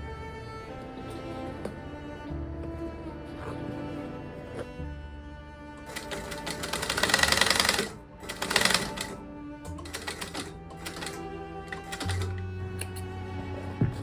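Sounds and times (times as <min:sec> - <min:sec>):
background music: 0:00.0 - 0:14.0
sewing machine stitching: 0:05.8 - 0:12.9.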